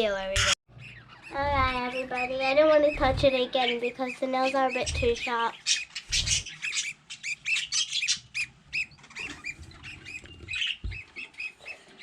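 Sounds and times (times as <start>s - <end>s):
budgerigars squawking and chirping: 0.3s - 12.0s
dull thumps: 10.4s - 11.3s.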